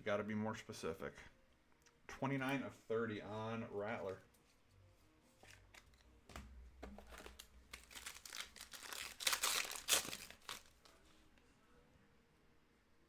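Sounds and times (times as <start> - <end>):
foil wrapper crinkling: 7.0 - 11.0.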